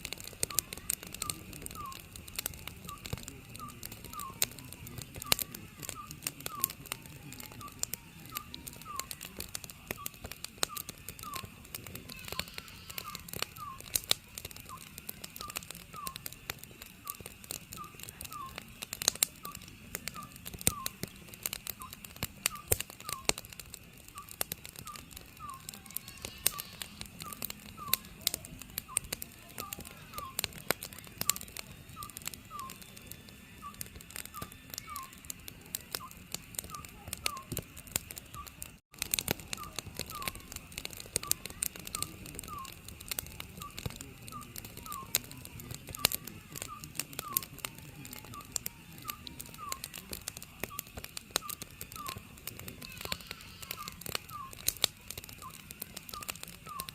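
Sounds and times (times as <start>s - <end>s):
wood fire crackling: 0.0s - 56.9s
owl hooting: 0.4s - 6.9s, 7.6s - 16.3s, 17.8s - 18.6s, 24.2s - 28.2s, 32.0s - 32.9s, 33.6s - 35.3s, 39.5s - 42.8s, 50.7s - 54.8s, 55.4s - 56.9s.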